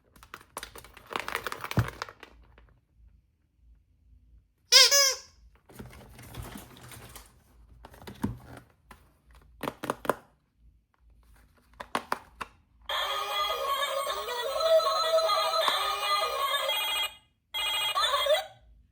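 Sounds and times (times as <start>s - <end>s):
plastic packaging rustling: 0.0s - 2.8s, 5.6s - 10.2s
tinny song with synthetic singing: 12.9s - 18.6s.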